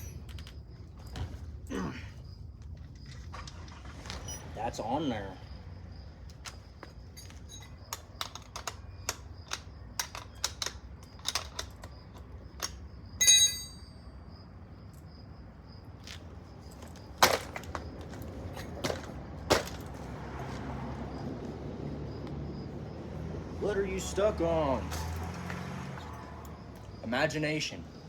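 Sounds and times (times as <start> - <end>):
metal bicycle parts clicking: 6.4 - 13.9
short metallic ring: 13.2 - 14.0.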